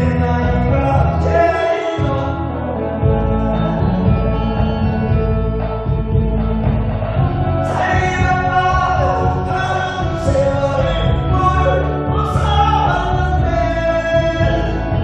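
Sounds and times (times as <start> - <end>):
instrumental backing music: 0.0 - 15.0
person singing long notes: 7.6 - 15.0.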